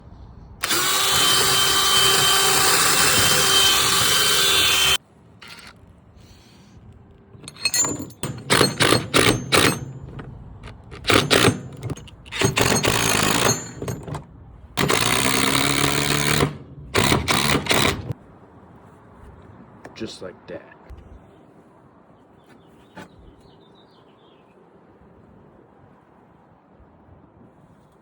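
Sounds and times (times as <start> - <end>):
power drill running: 0.6 - 5.7, 10.8 - 14.1, 14.8 - 18.2.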